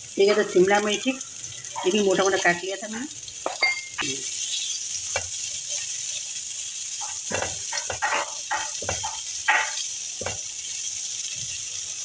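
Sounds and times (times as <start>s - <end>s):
vegetables sizzling in oil: 0.0s - 12.0s
spatula scraping pan: 7.0s - 10.5s.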